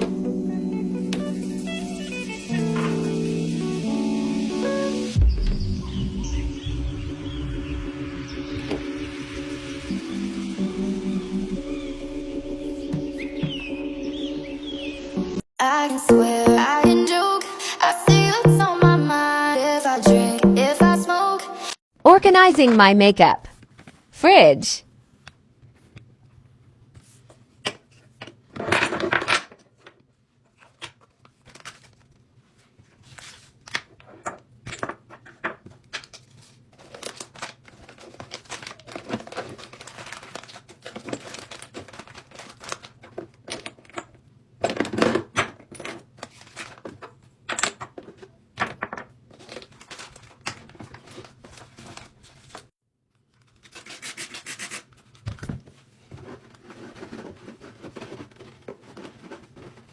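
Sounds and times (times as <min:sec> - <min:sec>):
packaging rustling: 0:30.5 - 0:32.3, 0:36.0 - 0:43.5, 0:49.3 - 0:52.7, 0:54.8 - 0:59.9.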